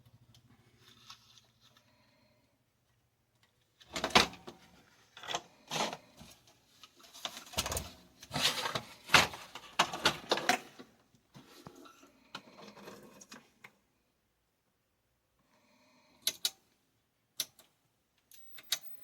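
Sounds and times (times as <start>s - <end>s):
handling scrapes and rattles: 3.8s - 13.6s.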